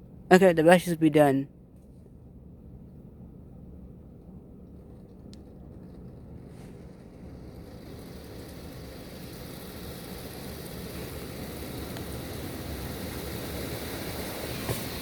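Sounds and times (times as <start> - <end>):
water spray rushing on car body: 6.5 - 15.0.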